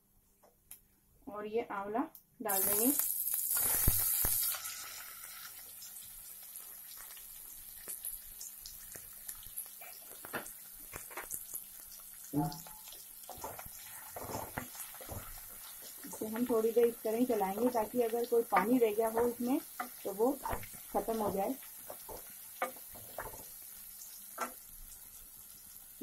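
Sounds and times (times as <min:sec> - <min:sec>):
food sizzling in hot oil: 0:02.4 - 0:26.0.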